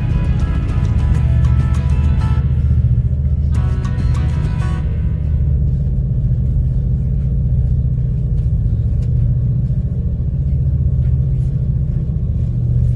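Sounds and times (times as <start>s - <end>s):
low engine rumble: 0.0s - 12.9s.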